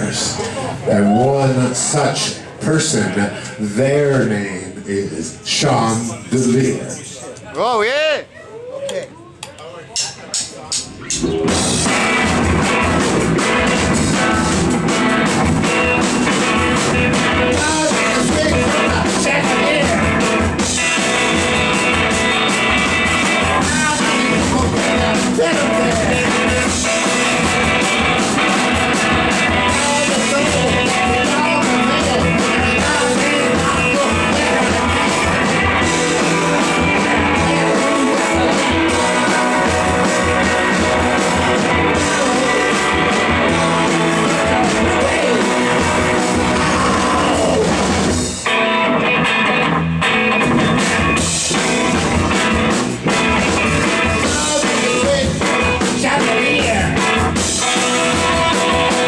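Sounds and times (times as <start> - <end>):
live rock band playing: 10.8 - 59.0.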